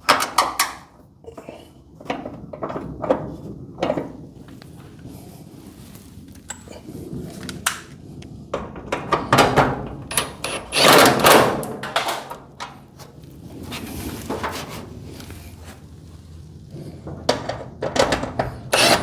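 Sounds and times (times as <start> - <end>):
metal hardware and tools rattling: 8.6 - 13.0, 17.0 - 19.0
loud rasping noise: 18.7 - 19.0.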